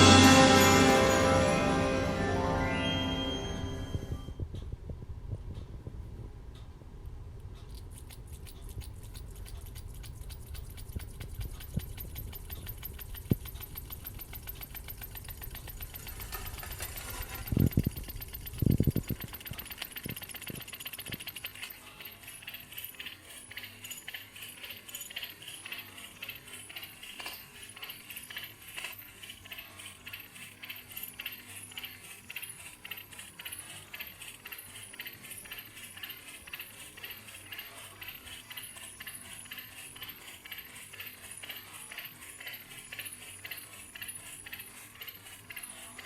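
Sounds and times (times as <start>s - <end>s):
stirling engine ticking and rattling: 7.8s - 46.0s.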